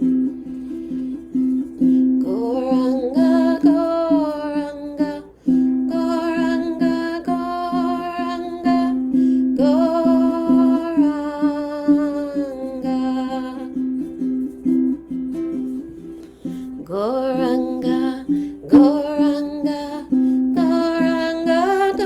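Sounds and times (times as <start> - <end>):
strummed stringed instrument: 0.0 - 22.0
woman singing a chant: 2.1 - 13.9, 16.7 - 22.0.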